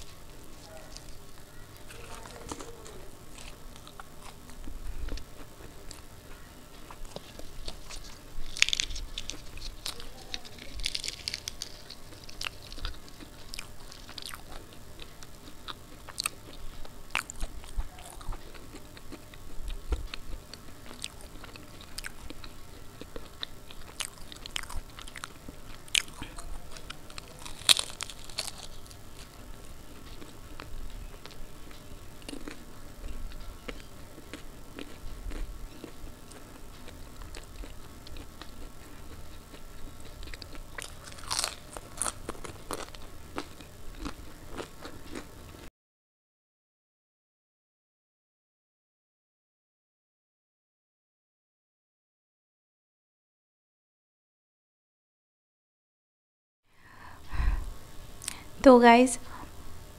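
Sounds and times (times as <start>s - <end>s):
person chewing crisp food: 0.0s - 45.7s.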